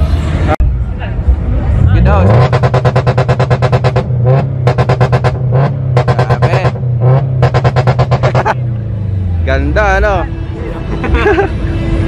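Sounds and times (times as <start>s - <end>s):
car engine stuttering at high revs: 1.8s - 8.6s.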